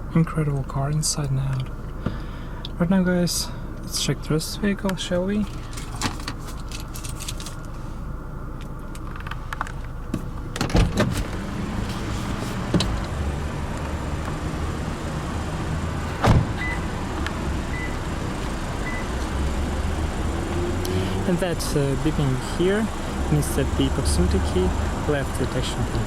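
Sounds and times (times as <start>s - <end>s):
steady low hum: 0.0s - 26.0s
car door thump: 16.2s - 16.8s.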